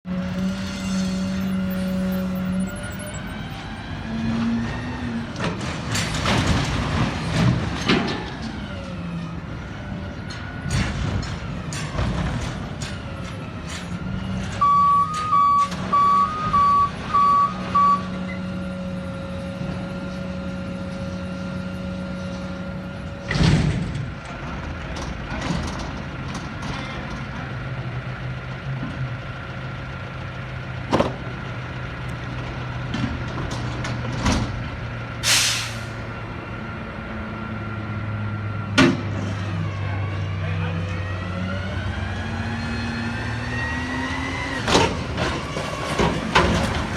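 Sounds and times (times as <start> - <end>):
garbage truck engine running: 0.1 - 40.4, 41.1 - 46.9
reversing alarm beeps: 14.6 - 18.5
air brakes hissing: 35.2 - 36.1.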